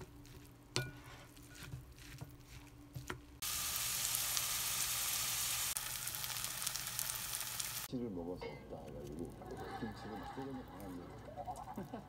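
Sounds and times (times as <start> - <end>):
wooden spoon stirring batter: 0.0 - 3.4
batter sizzling in a pan: 0.0 - 7.9.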